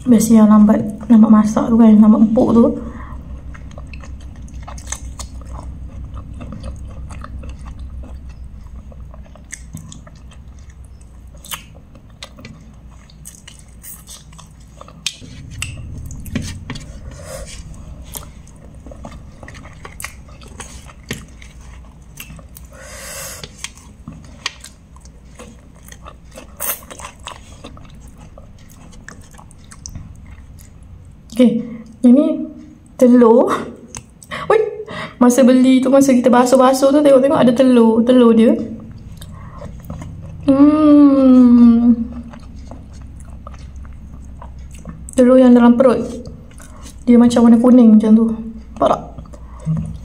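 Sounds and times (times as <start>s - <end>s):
person chewing and lip smacking: 3.2s - 33.0s, 33.8s - 34.4s, 38.7s - 41.0s, 41.9s - 45.3s, 45.9s - 47.1s, 48.4s - 50.0s.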